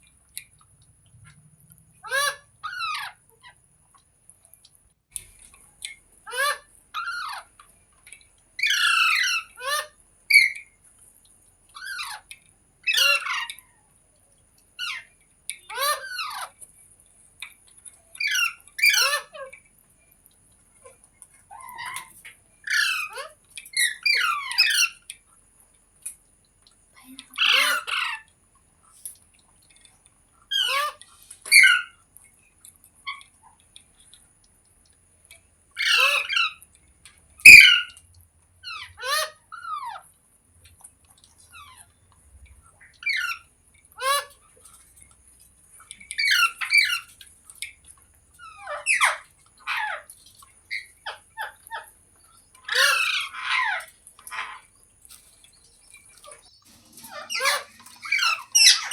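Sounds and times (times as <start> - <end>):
parrot squawking: 2.0 - 3.6, 8.6 - 10.6, 12.8 - 13.6, 18.2 - 19.4, 22.7 - 25.0, 27.4 - 28.3, 30.5 - 32.0, 35.8 - 36.6, 37.4 - 38.0, 38.6 - 40.0, 43.0 - 43.4, 44.0 - 44.4, 46.2 - 47.1, 48.4 - 50.1, 52.6 - 54.7, 56.2 - 58.9.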